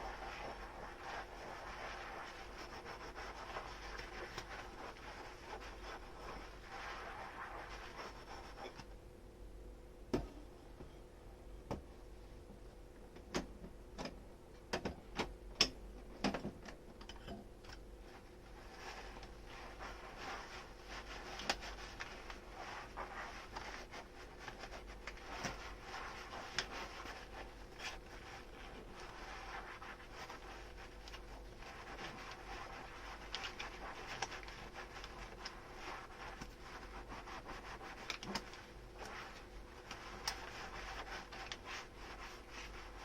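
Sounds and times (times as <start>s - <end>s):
sponge scrubbing dishes: 0.0s - 8.8s, 18.1s - 43.0s.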